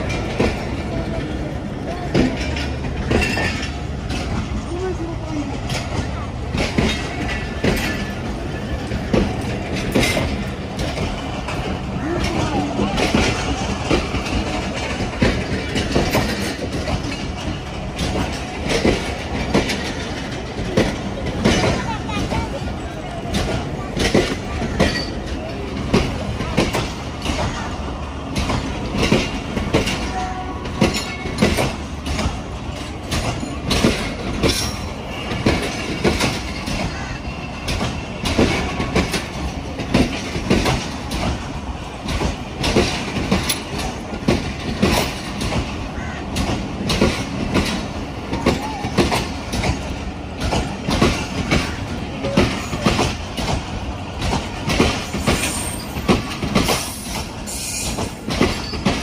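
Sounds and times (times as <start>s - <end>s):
steady train rumble: 0.0s - 59.0s
train wheels clacking over joints: 0.0s - 59.0s.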